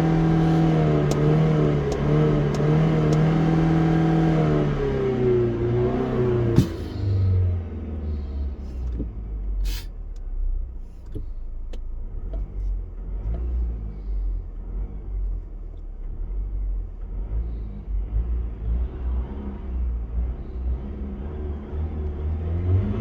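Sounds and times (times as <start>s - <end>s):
car engine idling: 0.0s - 18.1s.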